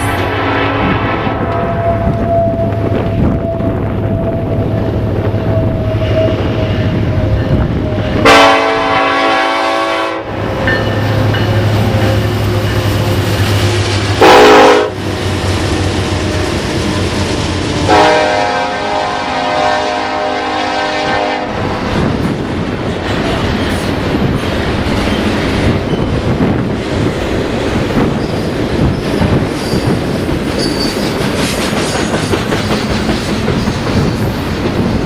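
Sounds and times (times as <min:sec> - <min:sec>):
locomotive air horn blasts: 0:00.0 - 0:03.8, 0:08.2 - 0:10.6, 0:14.2 - 0:15.0, 0:17.8 - 0:21.6
train rumble: 0:00.0 - 0:35.0.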